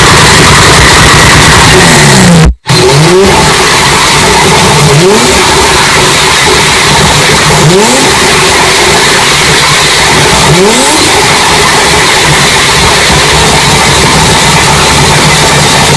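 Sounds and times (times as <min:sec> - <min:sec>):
suv engine revving: 0:00.0 - 0:15.9.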